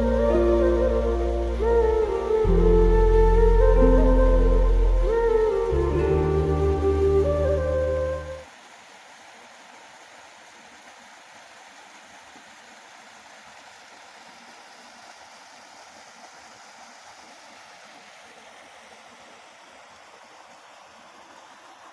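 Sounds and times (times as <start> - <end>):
flowing water: 0.0 - 21.9.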